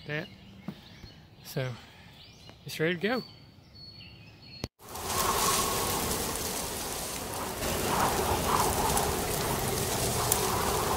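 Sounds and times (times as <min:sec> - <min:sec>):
heavy rain hissing: 0:04.8 - 0:10.9.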